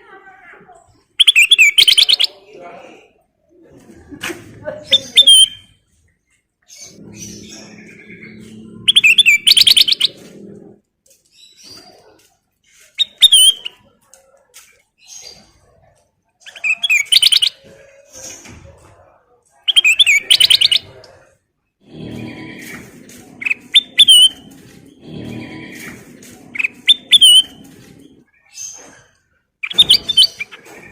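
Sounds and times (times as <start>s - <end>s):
soft bird calls: 6.6s - 15.8s, 21.9s - 30.9s
bulbul singing warbling whistles: 8.9s - 10.2s, 23.4s - 24.4s, 29.6s - 30.6s.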